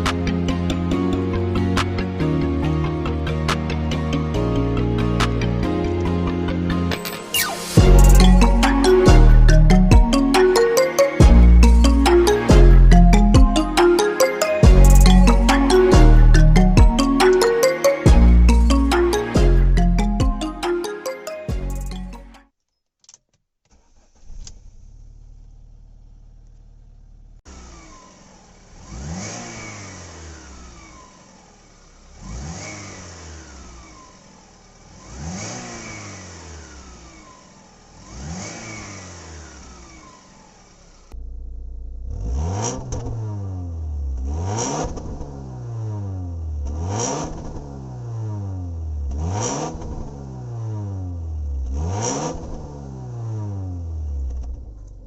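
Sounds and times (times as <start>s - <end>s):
car engine revving: 23.8s - 55.0s.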